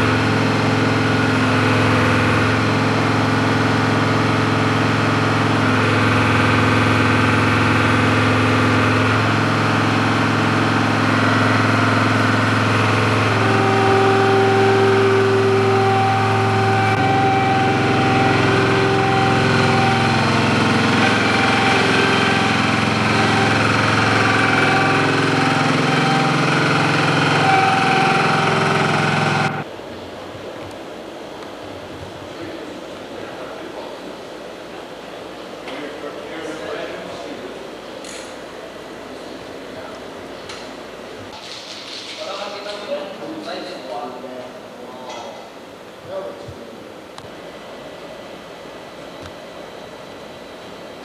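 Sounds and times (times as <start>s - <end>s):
engine running: 0.0s - 29.8s.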